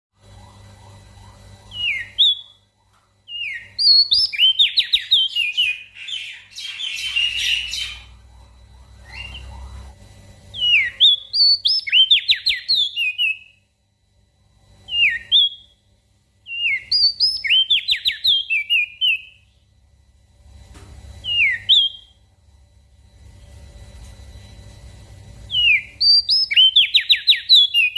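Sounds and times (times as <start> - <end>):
bird singing whistled trills: 1.7 - 2.6, 3.3 - 8.2, 8.8 - 9.8, 10.5 - 13.6, 14.9 - 15.8, 16.5 - 19.5, 21.2 - 22.2, 25.5 - 27.9.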